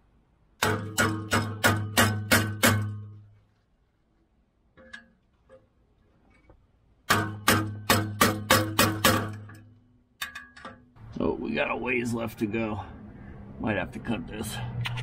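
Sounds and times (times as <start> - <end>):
hammer striking metal pipe: 0.6 - 3.3, 7.0 - 11.0.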